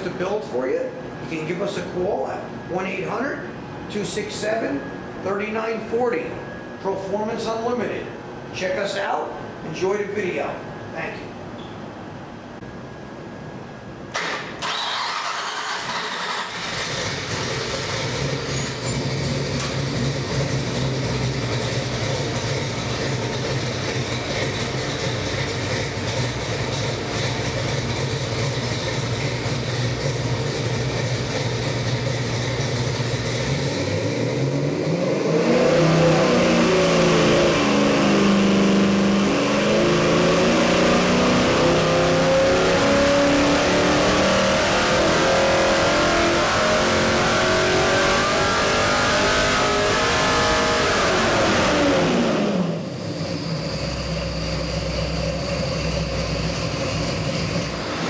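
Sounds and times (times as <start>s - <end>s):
engine idling and revving: 14.2s - 58.0s.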